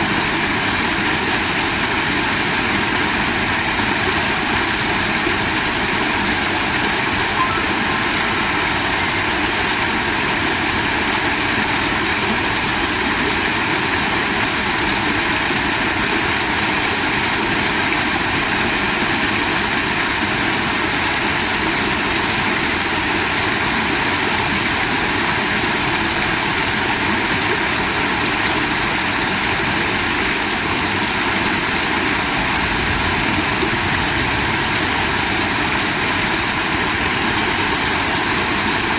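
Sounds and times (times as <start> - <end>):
heavy rain falling: 30.6 - 38.9.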